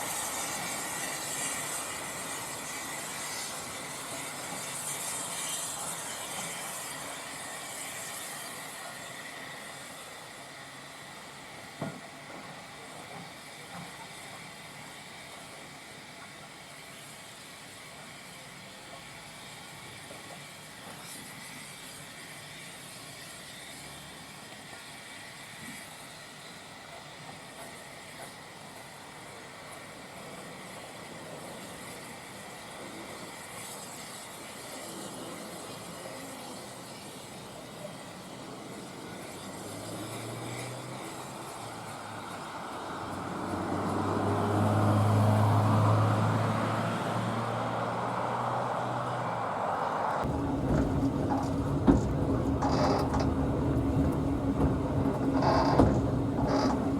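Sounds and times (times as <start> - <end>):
train running along track: 0.0 - 56.9
road noise: 35.2 - 56.9
vehicle engine hum passing by: 39.5 - 56.9
rattling noise: 50.2 - 56.9.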